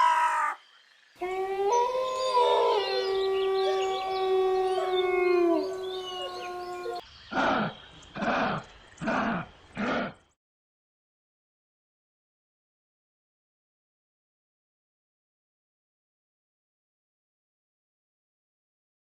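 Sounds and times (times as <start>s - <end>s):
howling voices: 1.2s - 10.2s.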